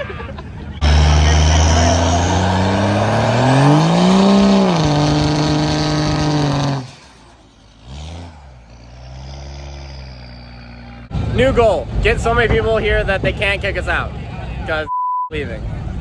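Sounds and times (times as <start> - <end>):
vehicle engine revving: 0.8 - 11.5.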